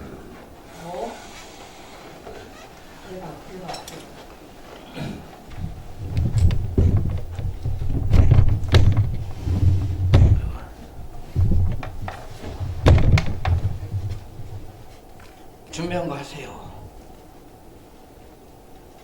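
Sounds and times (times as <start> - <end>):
heavy thumps and sharp knocks: 5.5 - 15.1.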